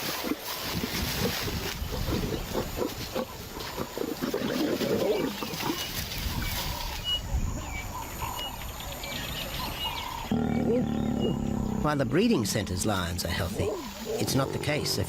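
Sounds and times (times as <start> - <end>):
lions growling and grunting: 0.0 - 6.8, 10.0 - 15.0.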